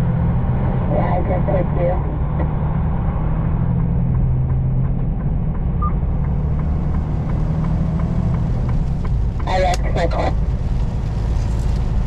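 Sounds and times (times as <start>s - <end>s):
truck engine and road drone: 0.0s - 12.0s
light regular ticking: 3.8s - 12.0s.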